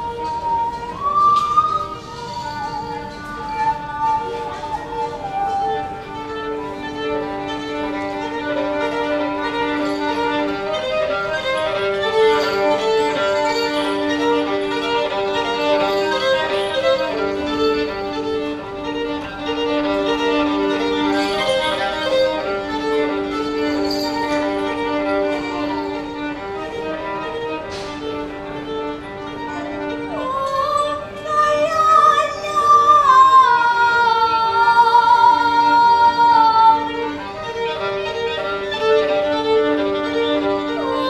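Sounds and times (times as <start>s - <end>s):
violin playing quick melody: 0.0s - 32.8s.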